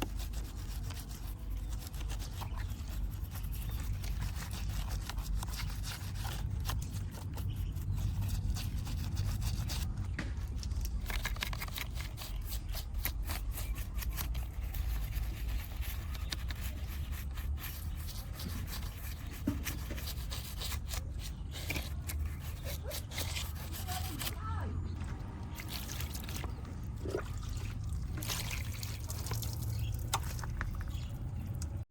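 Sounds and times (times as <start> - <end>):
scraping on model car: 0.0 - 24.6
steady low rumble: 17.0 - 31.9.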